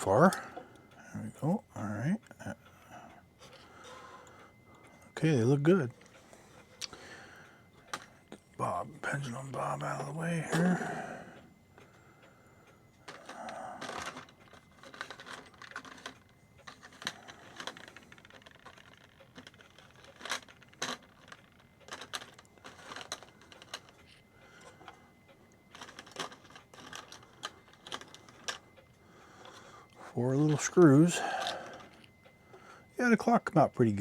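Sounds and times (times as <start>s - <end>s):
small clicks and taps of clock parts: 3.4s - 8.5s, 11.8s - 32.8s.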